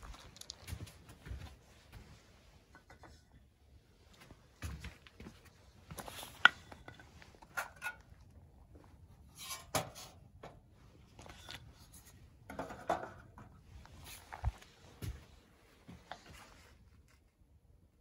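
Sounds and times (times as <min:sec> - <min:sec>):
small objects clicking and scraping: 0:00.0 - 0:01.0.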